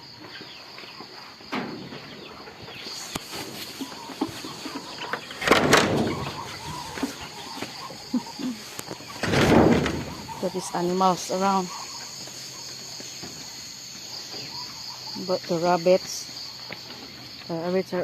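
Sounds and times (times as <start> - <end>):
chickens clucking: 0.0 - 18.0
crickets chirring: 0.0 - 18.0
loud scuffing noise: 2.8 - 5.4.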